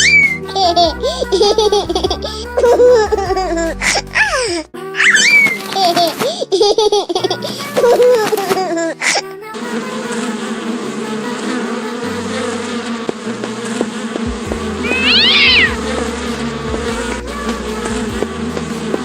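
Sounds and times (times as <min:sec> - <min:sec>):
droning hum with bass notes: 0:14.2 - 0:19.0
cat meowing: 0:14.8 - 0:15.8.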